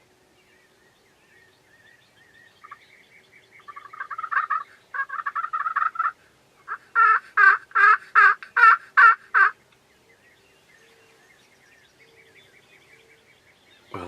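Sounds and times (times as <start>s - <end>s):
turkey gobbling: 3.6s - 9.6s
turkey yelps: 3.7s - 9.6s.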